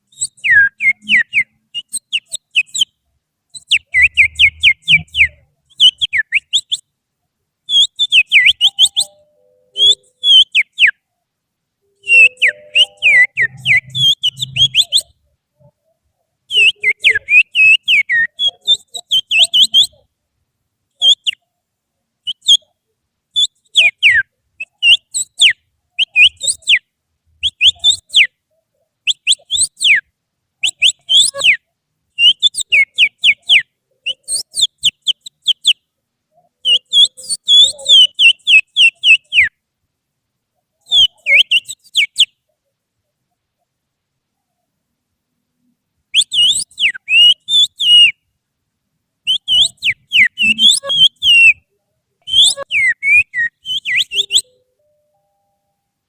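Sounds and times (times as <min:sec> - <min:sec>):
person finger whistling: 0:00.1 - 0:02.8, 0:07.8 - 0:10.9, 0:12.1 - 0:15.1, 0:49.3 - 0:51.6, 0:52.2 - 0:55.2.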